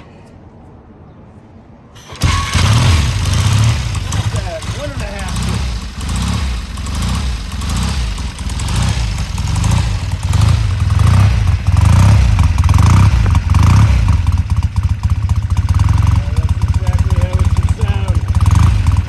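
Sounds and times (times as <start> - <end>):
motorcycle engine revving: 2.0 - 19.0.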